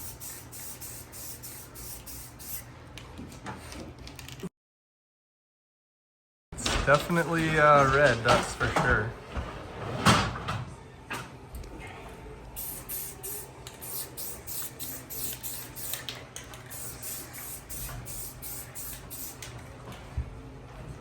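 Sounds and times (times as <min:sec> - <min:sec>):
spray paint hissing: 0:00.0 - 0:02.7, 0:12.6 - 0:19.4.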